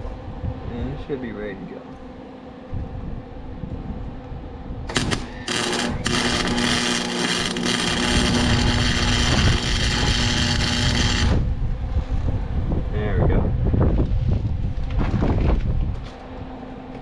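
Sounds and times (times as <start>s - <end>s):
arc welding crackle: 4.9s - 11.5s
welding arc strikes: 4.9s - 11.5s.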